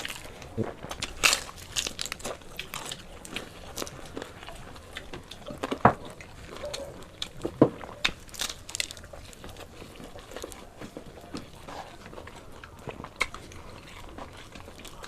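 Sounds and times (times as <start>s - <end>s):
chewing and crunching: 0.0s - 15.0s.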